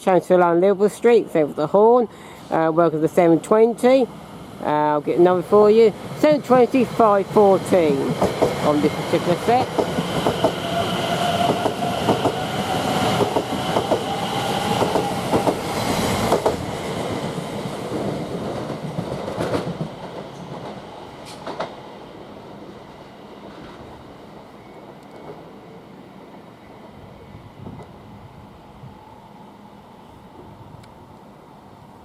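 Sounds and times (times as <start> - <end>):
train whine and rumble: 0.0 - 32.0
train wheels clicking over rail joints: 7.9 - 9.0, 9.6 - 10.8, 11.4 - 12.4, 13.1 - 14.1, 14.7 - 16.7.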